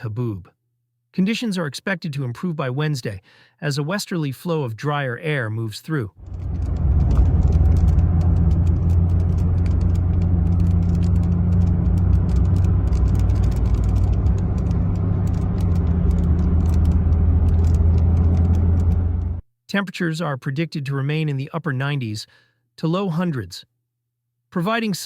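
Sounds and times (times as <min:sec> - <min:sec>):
strong storm wind buffeting: 0:06.2 - 0:19.4.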